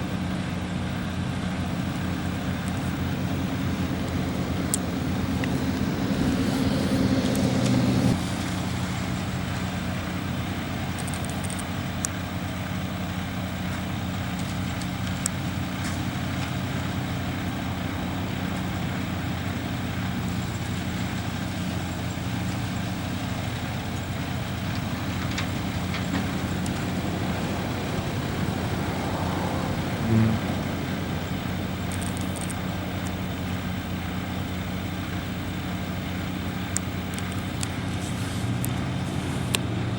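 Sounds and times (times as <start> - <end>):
heavy diesel truck engine running: 0.0 - 39.9
highway traffic hiss: 0.0 - 39.9.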